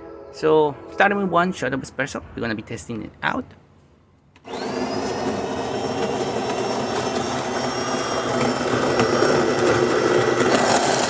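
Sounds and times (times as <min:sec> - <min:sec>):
motor whine: 0:04.4 - 0:11.0
coffee grinder grinding beans: 0:04.5 - 0:11.0.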